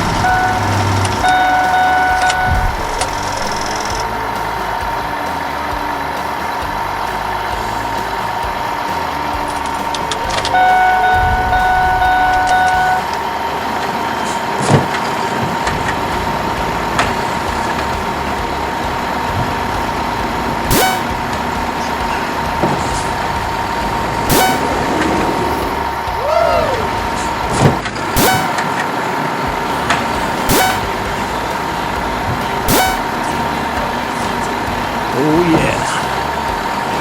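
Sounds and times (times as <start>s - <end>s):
vehicle horn honking: 0.0s - 3.7s, 10.4s - 13.2s, 20.7s - 21.5s, 24.3s - 25.2s, 28.2s - 28.8s, 30.4s - 31.1s, 32.7s - 33.4s
constant tone: 0.0s - 37.0s
sharp clicks or knocks: 29.9s - 31.0s.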